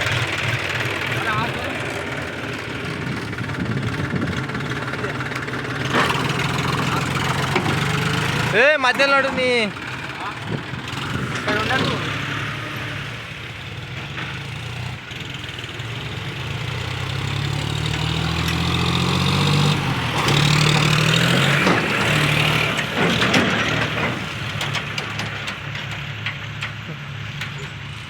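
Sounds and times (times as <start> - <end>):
tractor diesel engine revving: 0.0 - 28.0.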